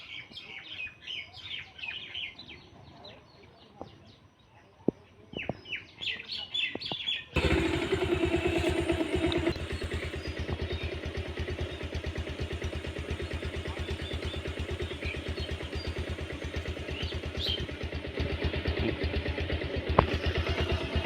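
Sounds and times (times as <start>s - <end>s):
faint high chirps: 7.4s - 18.0s
small engine throbbing: 7.4s - 21.0s.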